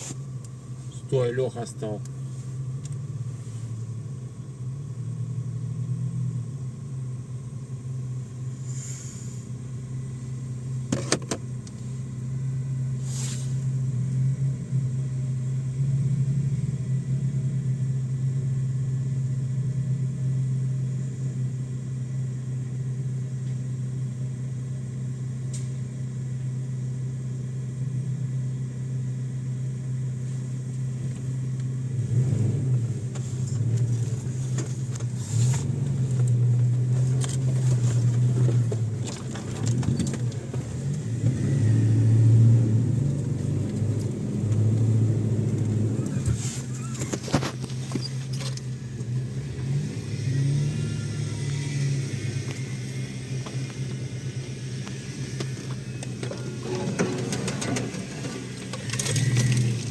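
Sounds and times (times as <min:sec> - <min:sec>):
car engine droning: 0:00.0 - 0:59.9
short rattle: 0:55.4 - 0:59.9.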